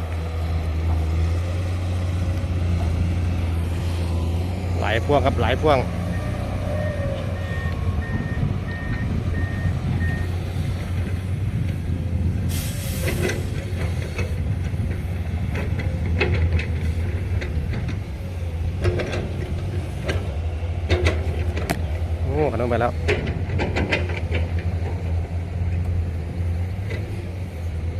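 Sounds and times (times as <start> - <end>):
heavy diesel engines running: 0.0 - 27.9
reversing beeper: 6.1 - 10.4
air brake hiss: 12.5 - 13.4.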